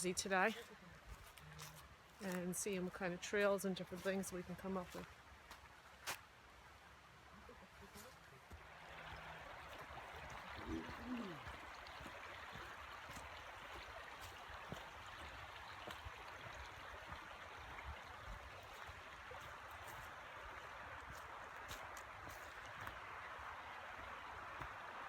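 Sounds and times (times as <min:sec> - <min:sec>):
creek water rushing: 0:00.0 - 0:25.0
brief low voice: 0:10.6 - 0:11.4.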